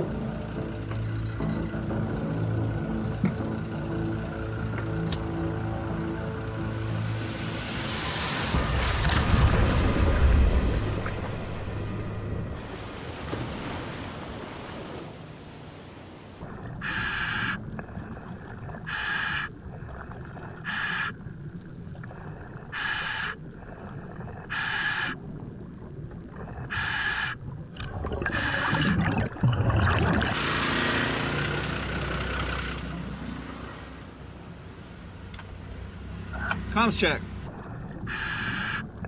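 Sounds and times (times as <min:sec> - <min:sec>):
water and surf wash: 0:06.6 - 0:22.8, 0:27.7 - 0:39.0
diver breathing through regulator: 0:22.4 - 0:25.2, 0:38.1 - 0:38.9.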